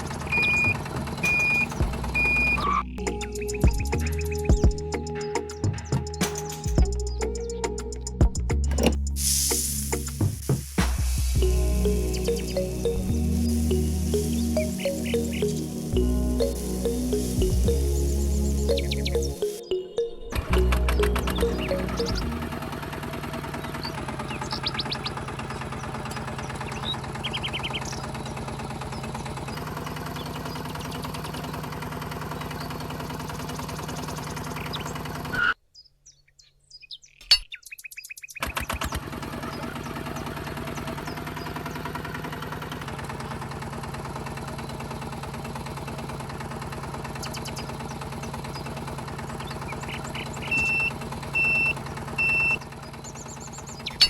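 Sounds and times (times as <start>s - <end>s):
bird chirps: 12.1s - 15.9s, 16.9s - 22.4s, 23.6s - 29.1s, 34.6s - 38.5s, 49.4s - 54.0s
small motor ticking: 38.6s - 54.0s
short high beeps: 50.5s - 52.6s.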